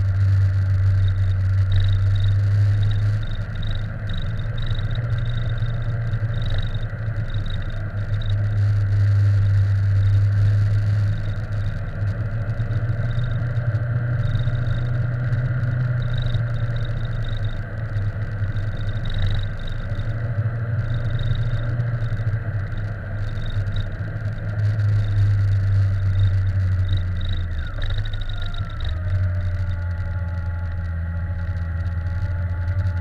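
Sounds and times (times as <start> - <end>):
vehicle drone in motion: 0.0 - 33.0.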